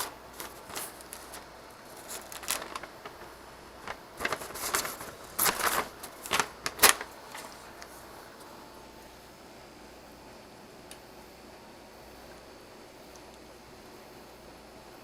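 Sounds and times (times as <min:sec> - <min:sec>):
rustling of objects handled: 0:00.0 - 0:08.5.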